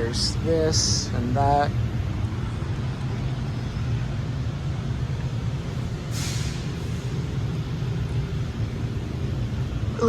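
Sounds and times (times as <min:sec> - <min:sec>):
store background rumble: 0:00.0 - 0:10.0
short hiss: 0:05.7 - 0:07.3.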